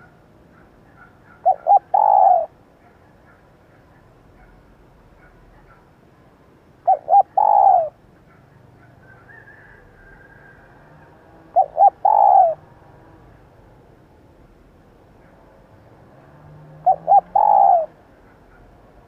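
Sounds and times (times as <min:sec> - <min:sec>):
dove cooing: 0:00.9 - 0:02.6, 0:06.8 - 0:08.4, 0:09.0 - 0:13.3, 0:16.4 - 0:18.7.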